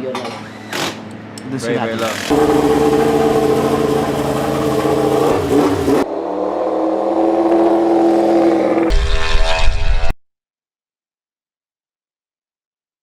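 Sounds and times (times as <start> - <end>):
rough engine with deep rumble: 2.0 - 6.2
high-revving racing engine: 2.2 - 10.2.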